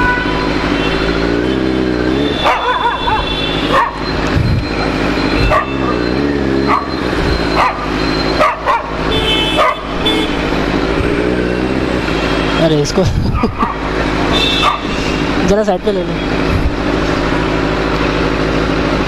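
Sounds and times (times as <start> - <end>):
motorcycle engine revving: 0.0 - 19.0
dog barking: 2.4 - 4.0, 5.4 - 6.0, 6.6 - 10.0, 13.4 - 13.9, 14.6 - 14.9.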